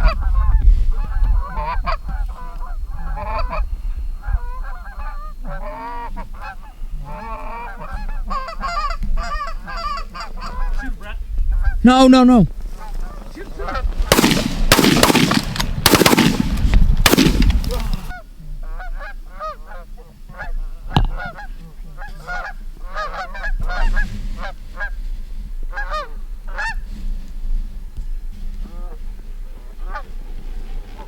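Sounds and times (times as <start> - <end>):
geese honking: 4.2 - 25.1, 25.7 - 26.9, 29.6 - 30.2
sharp crack: 12.9 - 18.2
loud rushing bursts: 14.0 - 18.1.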